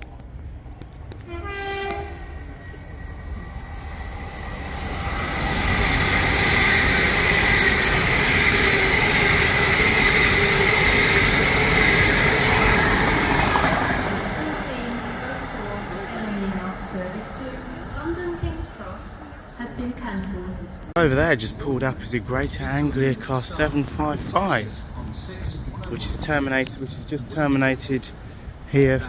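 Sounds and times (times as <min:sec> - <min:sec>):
train arriving rumble: 0:00.0 - 0:29.0
train horn blast: 0:01.2 - 0:02.5
steady high tone: 0:02.0 - 0:20.0.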